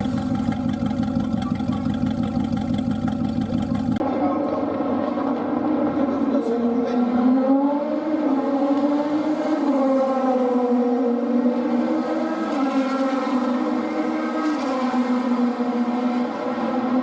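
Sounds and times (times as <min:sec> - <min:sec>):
race car engine running: 0:00.0 - 0:06.2.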